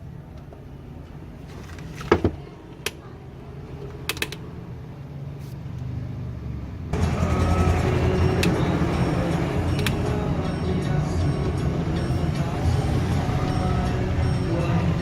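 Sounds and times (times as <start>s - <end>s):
sharp clicks and knocks: 4.0s - 4.4s
music: 7.0s - 15.0s.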